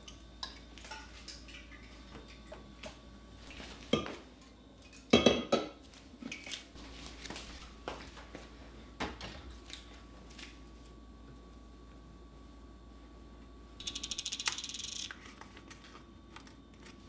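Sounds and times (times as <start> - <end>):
dishes clattering: 3.9 - 4.2, 5.1 - 5.8
dishes and cutlery clinking: 5.1 - 5.8.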